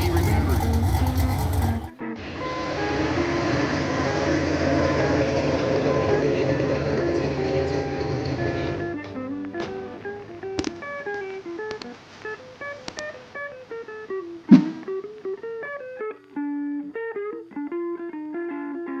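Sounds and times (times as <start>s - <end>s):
plucked guitar melody: 7.8s - 19.0s
sharp hit: 14.5s - 14.9s.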